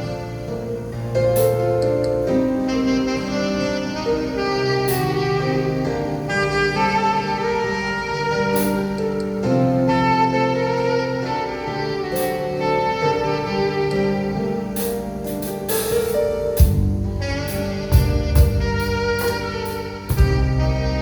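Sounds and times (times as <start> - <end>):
alto saxophone melody: 0.0 - 21.0
drum kit with cymbals: 0.0 - 21.0
keyboard: 0.0 - 21.0.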